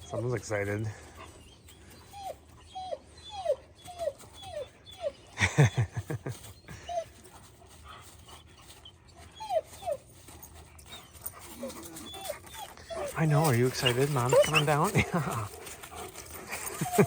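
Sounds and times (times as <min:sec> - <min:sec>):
dog whining: 0:01.3 - 0:05.4, 0:08.3 - 0:17.0.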